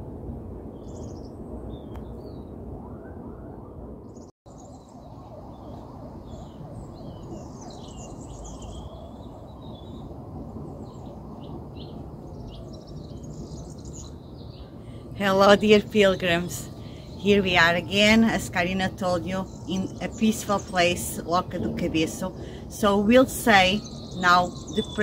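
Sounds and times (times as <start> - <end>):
small birds chirping and trilling: 4.1 - 25.0
low background rumble: 5.9 - 25.0.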